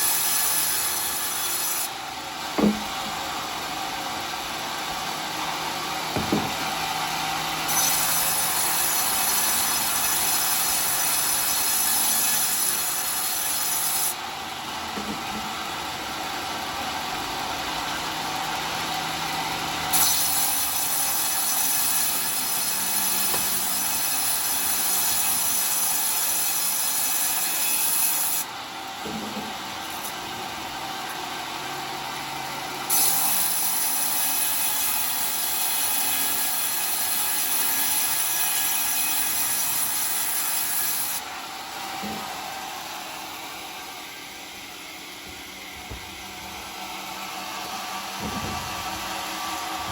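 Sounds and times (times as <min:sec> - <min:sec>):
saw cutting wood with rasp: 0:00.0 - 0:16.9, 0:18.2 - 0:31.2, 0:32.8 - 0:49.9.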